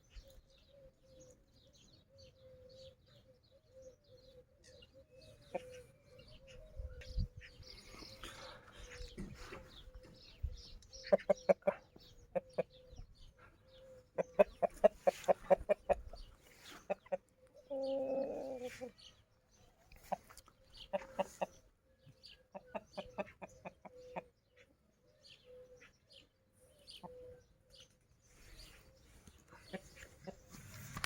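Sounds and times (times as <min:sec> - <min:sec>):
chickens clucking: 0:05.4 - 0:06.0, 0:06.9 - 0:19.0, 0:19.8 - 0:24.7, 0:29.2 - 0:31.0.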